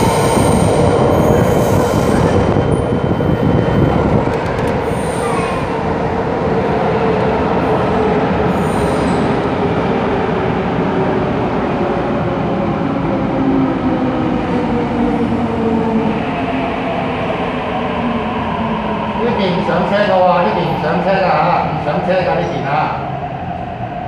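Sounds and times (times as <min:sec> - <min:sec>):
train wheels rumbling on rails: 0:00.0 - 0:16.6.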